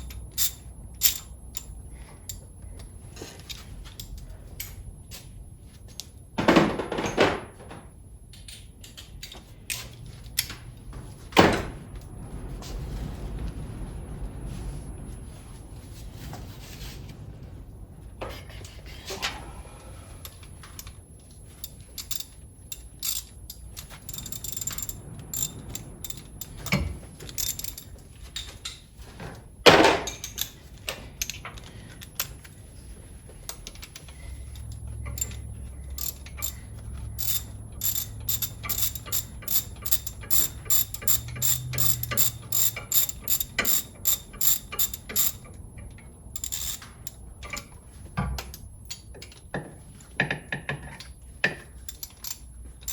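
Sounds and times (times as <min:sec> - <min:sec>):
ratchet wrench clicking: 0:00.0 - 0:02.4, 0:21.6 - 0:27.8, 0:34.5 - 0:45.5, 0:46.3 - 0:47.7, 0:51.8 - 0:52.9.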